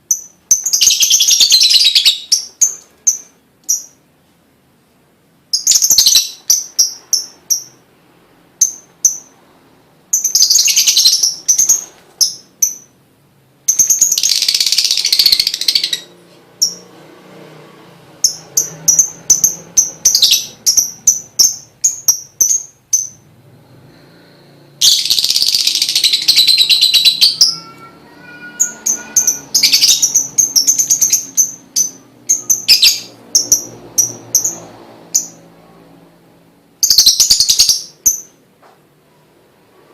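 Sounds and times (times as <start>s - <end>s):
bird chirping: 0.0s - 4.1s, 5.5s - 7.9s, 8.6s - 9.4s, 10.1s - 13.0s, 13.6s - 17.0s, 18.2s - 23.4s, 24.2s - 35.5s, 36.8s - 38.4s
bird chattering: 24.8s - 34.6s.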